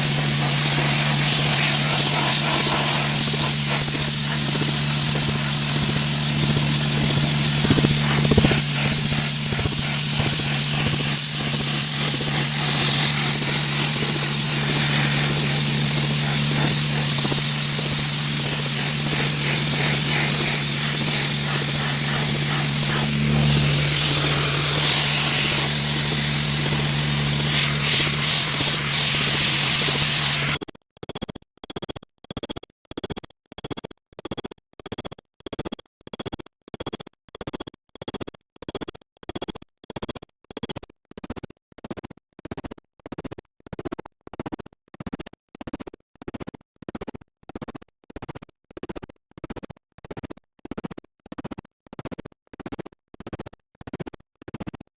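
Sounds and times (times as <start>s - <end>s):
compressed air spraying: 0.0s - 30.6s.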